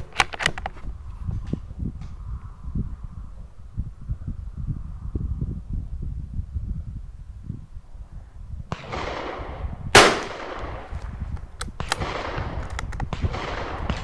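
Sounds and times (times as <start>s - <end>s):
rifle shot: 8.7s - 11.1s, 11.7s - 14.0s.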